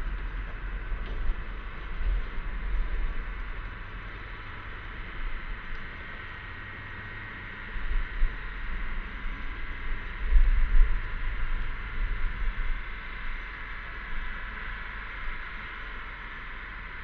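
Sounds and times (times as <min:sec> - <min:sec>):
wind buffeting microphone: 0:00.0 - 0:04.4
cicadas droning: 0:00.0 - 0:17.0.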